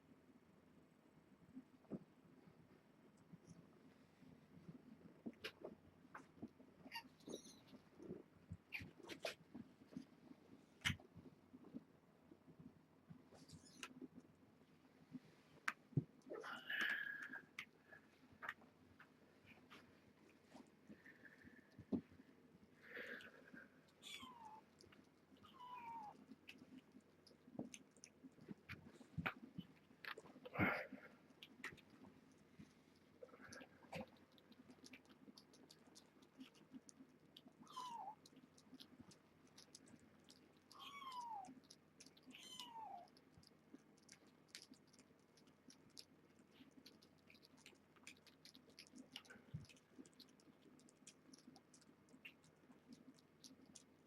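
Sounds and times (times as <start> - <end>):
cats eating wet food: 4.5 - 54.0
cat meowing: 25.4 - 26.2, 37.6 - 38.2, 40.7 - 41.5, 42.3 - 43.1.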